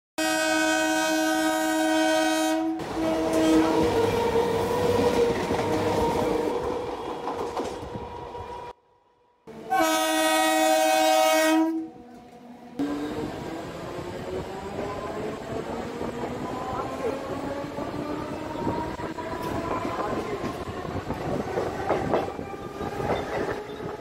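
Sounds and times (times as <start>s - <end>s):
train horn blowing: 0.2s - 3.9s, 9.5s - 11.9s
passing train rumble and clatter: 0.4s - 8.8s, 9.4s - 24.0s.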